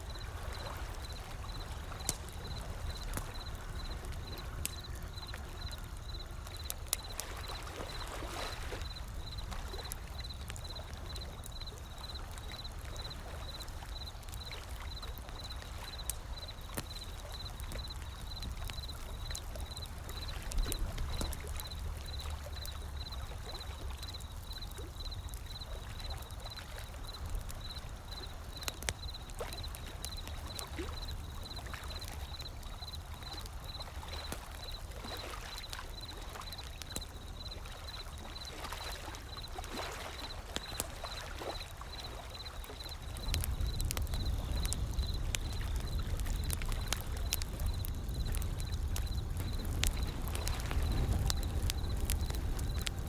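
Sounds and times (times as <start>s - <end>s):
wood fire crackling: 0.0s - 53.0s
ocean waves: 6.6s - 10.4s, 32.9s - 45.2s.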